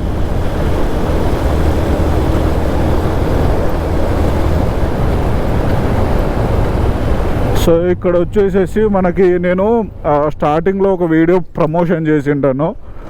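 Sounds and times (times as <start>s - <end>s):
motorcycle engine: 0.0s - 10.3s
wind rushing over microphone: 0.0s - 11.8s
road noise: 0.0s - 13.0s.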